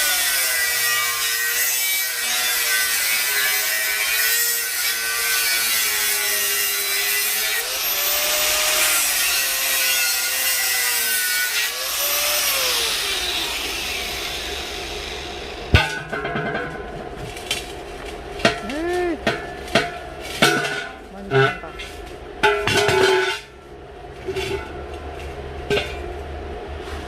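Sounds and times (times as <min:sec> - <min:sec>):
angle grinder cutting steel: 0:00.0 - 0:15.8.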